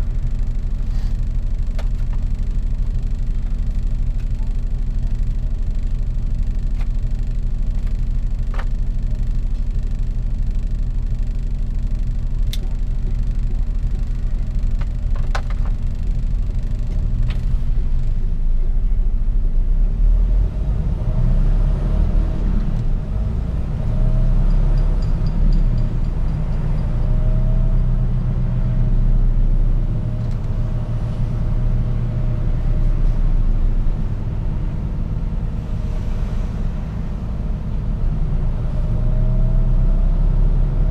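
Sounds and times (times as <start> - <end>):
truck diesel engine rumble: 0.0 - 40.9.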